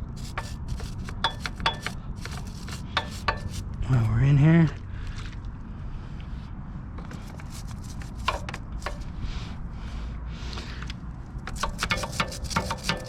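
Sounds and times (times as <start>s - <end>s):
brush scrubbing motorcycle chain: 0.0s - 4.1s, 7.1s - 9.1s, 11.5s - 13.0s.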